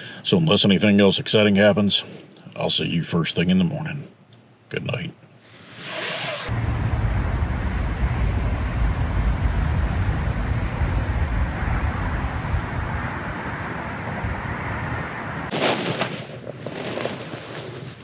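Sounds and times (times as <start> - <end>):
wind buffeting microphone: 6.5 - 15.5.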